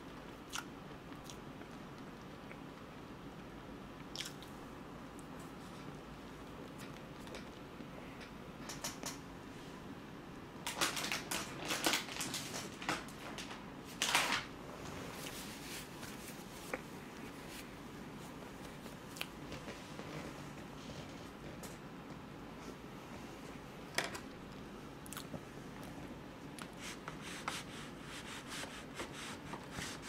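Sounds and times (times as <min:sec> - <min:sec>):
wet mouth clicks and smacks: 0:04.1 - 0:04.5.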